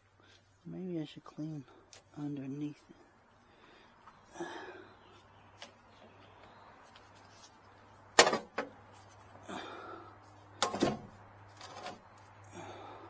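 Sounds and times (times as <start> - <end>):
parts knocking and clunking: 8.2 - 9.1, 10.6 - 12.2.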